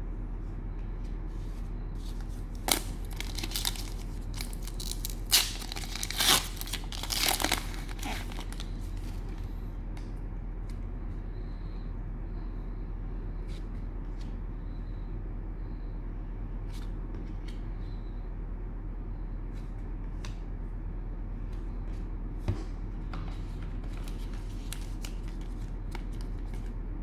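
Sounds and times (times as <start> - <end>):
steady low hum: 0.0 - 27.0
cellophane wrapper tearing and crinkling: 2.6 - 8.8.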